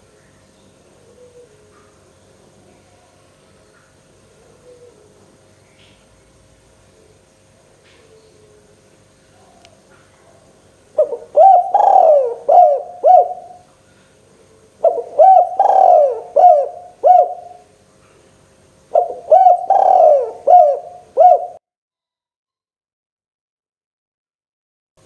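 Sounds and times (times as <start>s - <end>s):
dove cooing: 1.0s - 1.9s, 4.2s - 5.4s, 7.9s - 13.7s, 14.4s - 17.7s, 18.9s - 21.6s.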